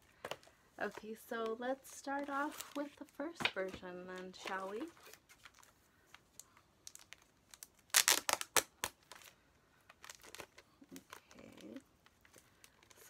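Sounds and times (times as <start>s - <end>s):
plastic packaging crinkling: 1.8s - 13.0s.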